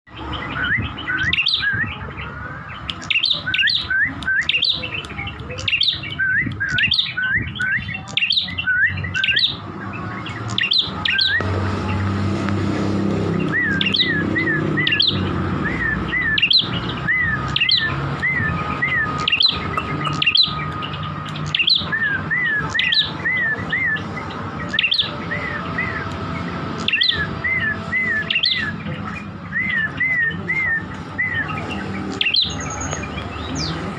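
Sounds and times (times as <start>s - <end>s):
songbird calling sharp notes: 0.1s - 33.9s.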